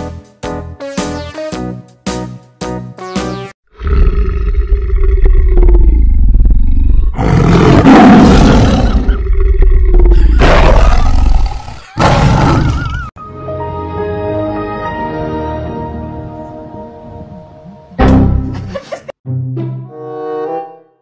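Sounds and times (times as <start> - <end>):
deep rumble: 9.0 - 10.4.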